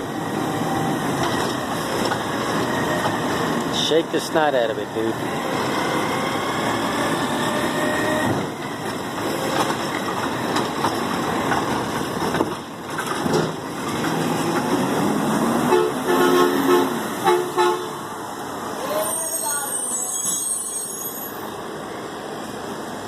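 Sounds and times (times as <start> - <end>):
garbage truck engine under load: 5.1 - 16.1.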